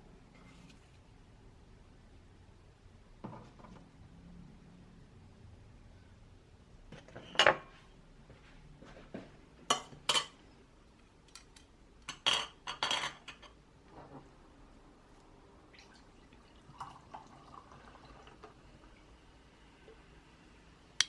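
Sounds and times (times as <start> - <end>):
dishes and cutlery clattering: 9.7 - 10.4, 12.0 - 13.6.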